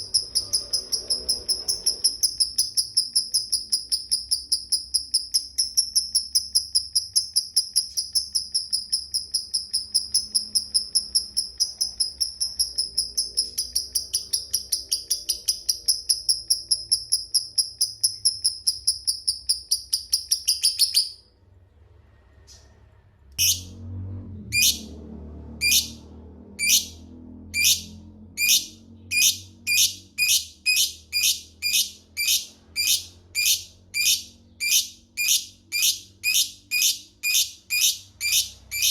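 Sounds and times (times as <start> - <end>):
bird sharp ticking calls: 0.0 - 21.2
lovebird chattering trill: 0.0 - 21.2, 27.6 - 38.9.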